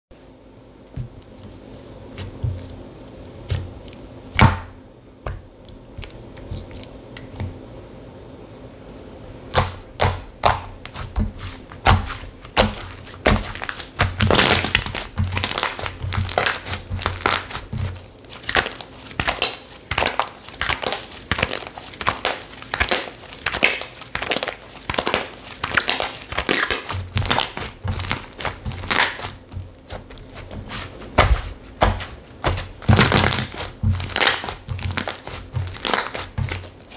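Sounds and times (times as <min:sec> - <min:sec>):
slime clicking and popping: 0:18.4 - 0:29.3, 0:32.5 - 0:36.6.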